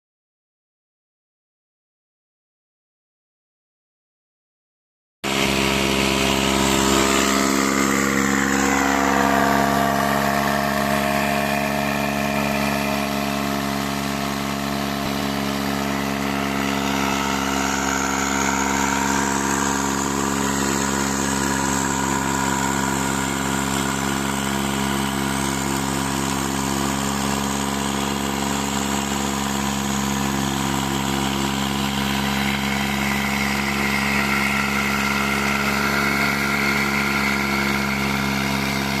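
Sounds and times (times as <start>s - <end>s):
diesel tractor engine running: 5.3s - 39.0s
high whine falling in pitch: 5.3s - 39.0s.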